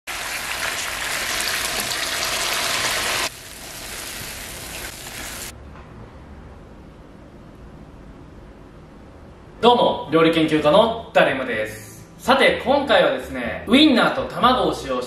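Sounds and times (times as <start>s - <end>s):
egg sizzling quietly: 0.1s - 5.5s
sausages sizzling in a frying pan: 0.1s - 5.5s.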